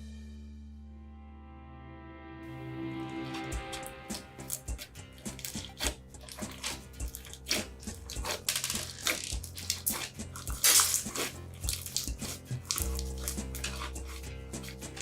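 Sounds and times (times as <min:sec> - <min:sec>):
quiet background music: 0:00.0 - 0:15.0
squelching crackling play material: 0:03.1 - 0:15.0.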